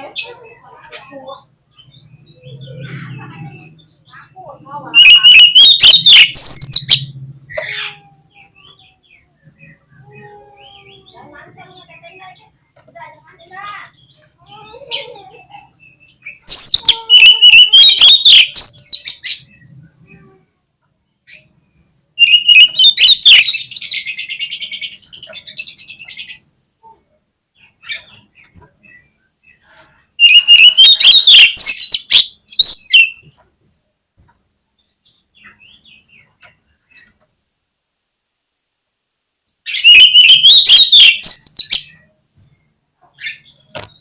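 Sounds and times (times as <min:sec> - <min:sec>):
bird chattering song: 0:00.0 - 0:12.6, 0:13.4 - 0:20.3, 0:21.2 - 0:26.5, 0:27.6 - 0:33.3, 0:39.7 - 0:44.0.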